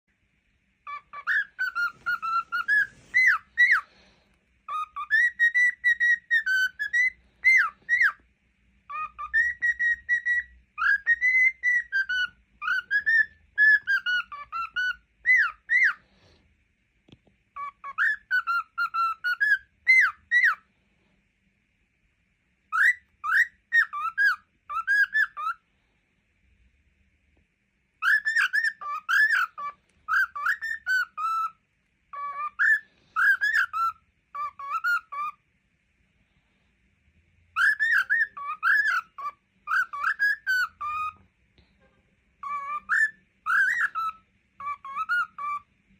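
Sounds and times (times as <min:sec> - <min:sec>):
cockatiel whistling: 0:00.8 - 0:04.0, 0:04.7 - 0:08.2, 0:08.8 - 0:16.0, 0:17.6 - 0:20.7, 0:22.7 - 0:25.6, 0:28.0 - 0:35.4, 0:37.5 - 0:41.2, 0:42.4 - 0:45.7.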